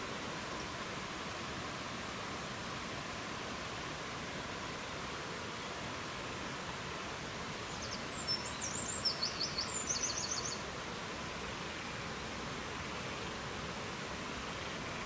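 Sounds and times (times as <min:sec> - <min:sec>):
songbird chirps and trills: 0:07.7 - 0:10.7.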